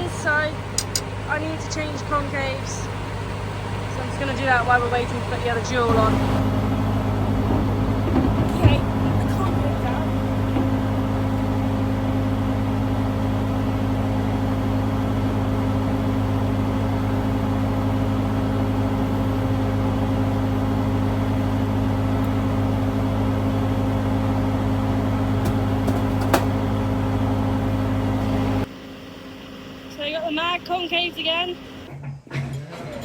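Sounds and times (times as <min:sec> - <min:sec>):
farm machine engine idling: 0:00.0 - 0:31.9
sharp click: 0:00.8 - 0:01.1.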